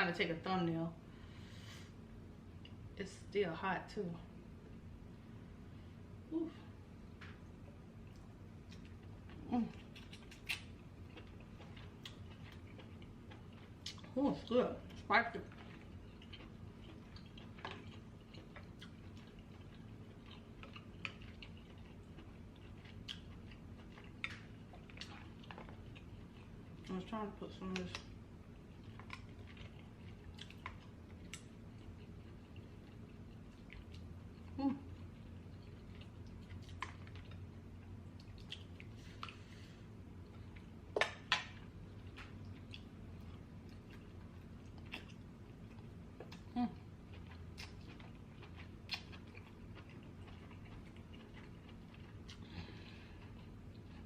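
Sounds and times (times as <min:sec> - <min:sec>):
person chewing with wet mouth clicks: 0:15.6 - 0:26.8, 0:28.8 - 0:37.4, 0:38.1 - 0:39.4, 0:40.4 - 0:52.6.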